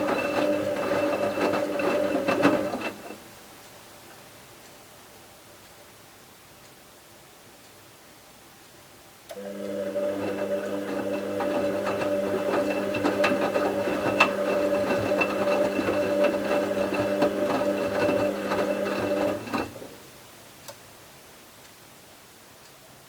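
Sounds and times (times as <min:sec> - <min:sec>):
washing machine humming and clattering: 0:00.0 - 0:03.4, 0:09.3 - 0:20.2.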